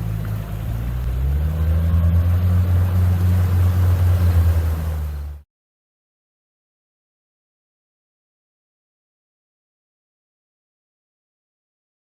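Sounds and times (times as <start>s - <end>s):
boat motor running: 0.0s - 5.4s.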